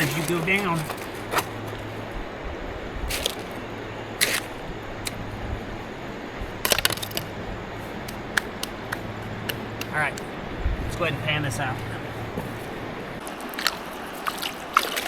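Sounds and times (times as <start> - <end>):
stones knocking and clicking: 6.6 - 7.3.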